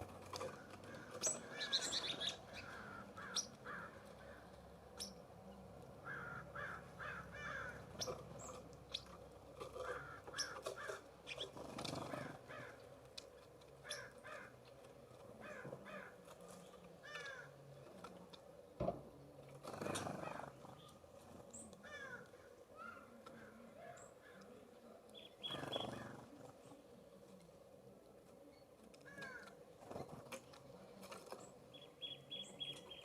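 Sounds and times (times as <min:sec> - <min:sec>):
birds calling harshly: 0:00.3 - 0:05.2, 0:06.0 - 0:12.9, 0:13.8 - 0:14.6, 0:19.6 - 0:24.4, 0:25.2 - 0:26.4.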